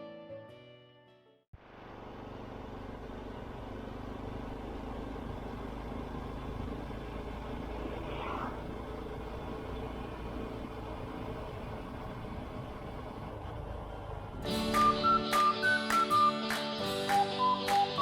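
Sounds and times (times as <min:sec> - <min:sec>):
motorcycle engine running: 0:01.6 - 0:15.2.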